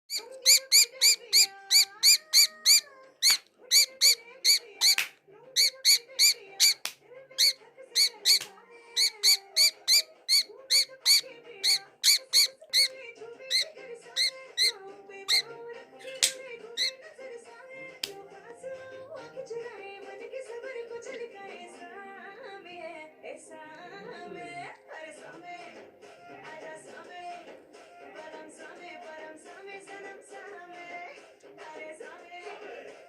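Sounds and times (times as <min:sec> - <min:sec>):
bird chirping loudly: 0:00.1 - 0:17.0
background music: 0:00.1 - 0:33.0.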